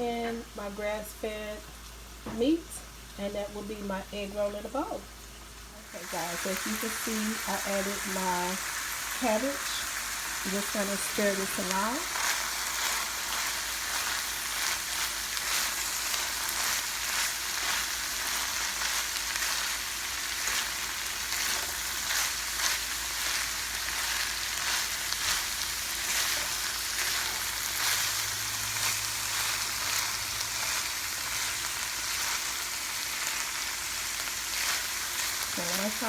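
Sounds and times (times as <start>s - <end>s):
meat sizzling in a frying pan: 4.7s - 36.0s.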